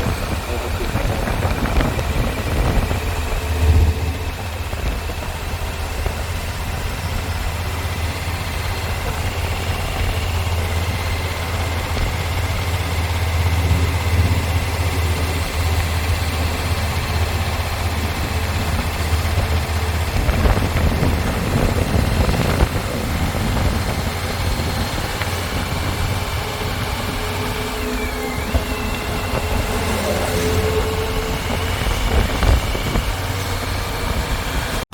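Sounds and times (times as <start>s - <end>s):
engine humming and rumbling: 0.0s - 34.9s.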